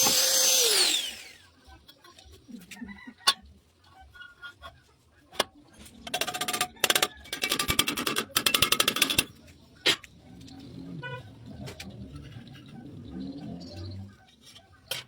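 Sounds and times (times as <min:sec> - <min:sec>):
power tool rattling clatter: 0:00.0 - 0:01.4.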